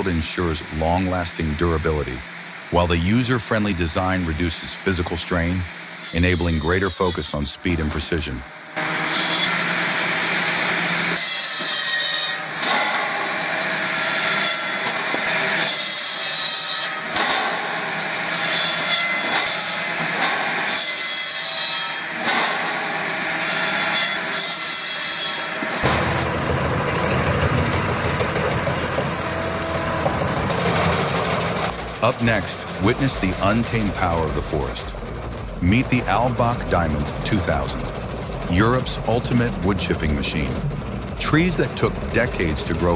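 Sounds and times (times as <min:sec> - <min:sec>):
saw blades cutting logs: 0:00.0 - 0:42.9
low engine rumble: 0:25.9 - 0:42.9.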